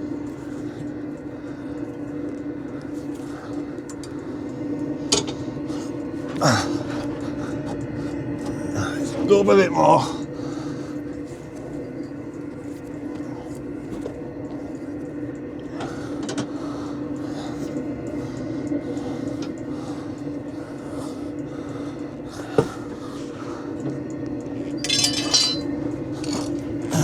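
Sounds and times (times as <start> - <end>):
steady low hum: 0.0 - 27.0
jack clinking metallically: 24.7 - 26.6.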